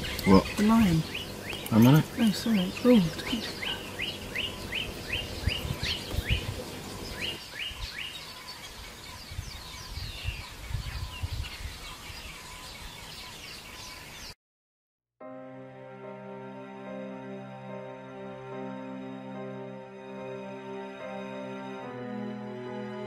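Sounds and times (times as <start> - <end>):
low rumbling field noise: 0.0 - 7.7
small birds chirping: 0.0 - 14.4.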